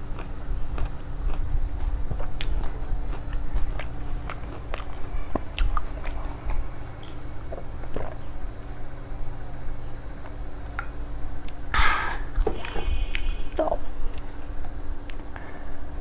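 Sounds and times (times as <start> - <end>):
crisp shells crunching while chewed: 0.0 - 8.2
steady low hum: 0.0 - 16.0.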